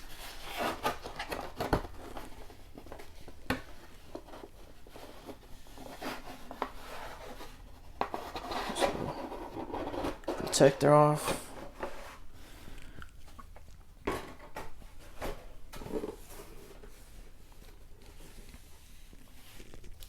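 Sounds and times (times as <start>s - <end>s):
packaging rustling: 0.0s - 10.7s.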